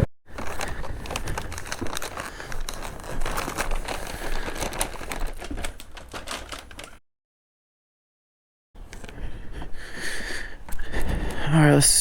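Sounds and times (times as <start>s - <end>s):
close rustling and crinkling: 0.3s - 7.0s.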